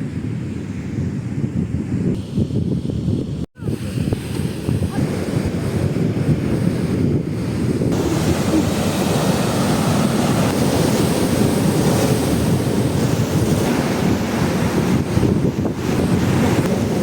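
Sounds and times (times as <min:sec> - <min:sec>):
wind buffeting microphone: 0:00.0 - 0:17.0
surf breaking on beach: 0:03.6 - 0:17.0.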